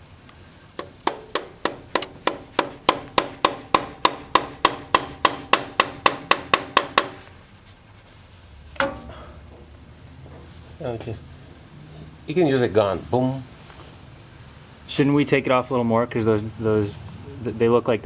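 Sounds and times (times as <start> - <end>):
hammer striking chisel on metal: 0.8 - 7.3.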